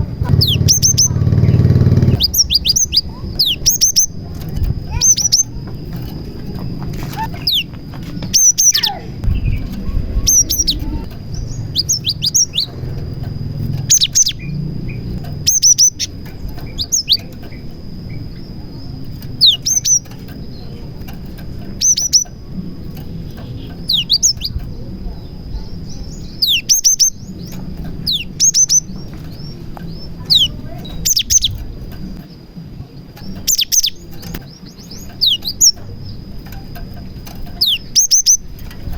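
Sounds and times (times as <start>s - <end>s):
low rumble: 0.0s - 19.7s
bird singing sharp falling notes: 0.3s - 4.2s.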